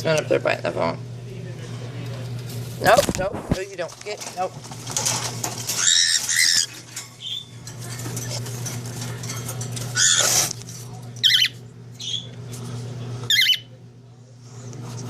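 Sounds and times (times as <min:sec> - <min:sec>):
birds wing flapping and rustling: 0:02.0 - 0:11.7.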